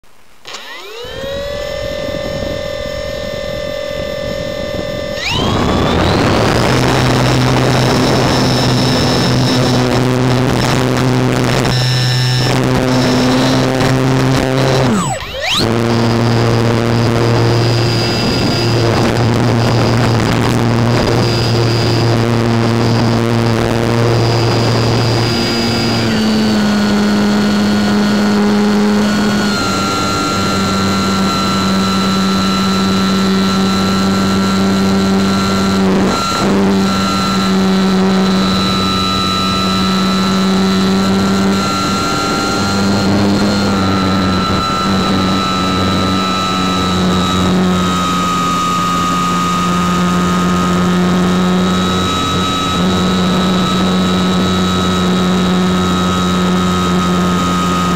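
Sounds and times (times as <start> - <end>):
model plane motor whining: 0.4 - 57.9.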